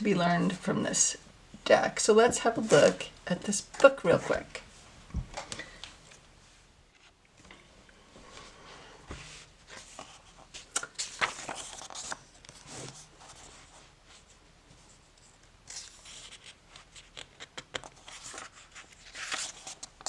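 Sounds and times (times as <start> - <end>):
book pages turning: 2.6 - 4.4, 9.1 - 13.6, 15.7 - 20.0.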